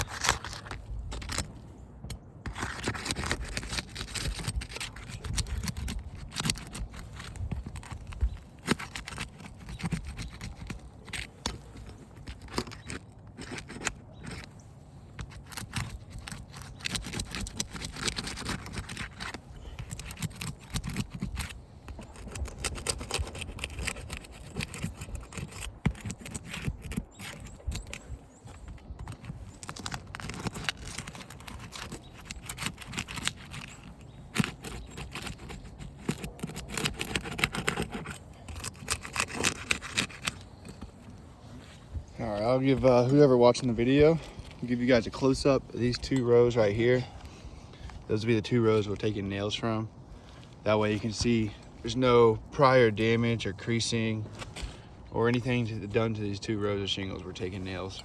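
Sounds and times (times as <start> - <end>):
metal tool prying roof shingles: 0.0 - 41.3
scraping and crackling: 0.0 - 56.0.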